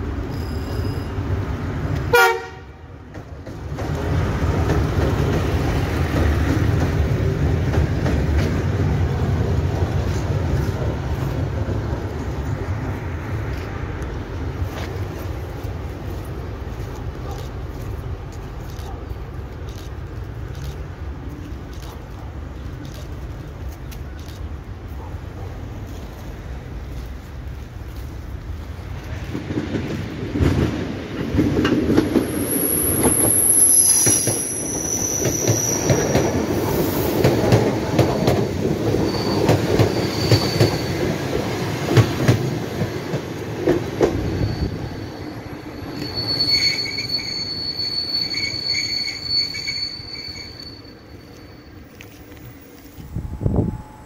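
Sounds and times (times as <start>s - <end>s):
high-pitched wheel squeal: 32.3s - 37.1s, 39.0s - 41.4s, 44.0s - 52.2s.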